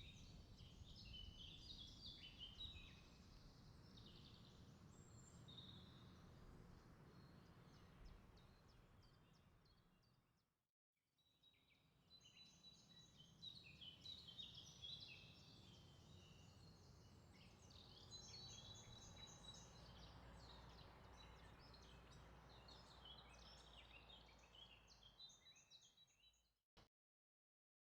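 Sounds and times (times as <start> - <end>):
small birds chirping: 12.3 - 26.4.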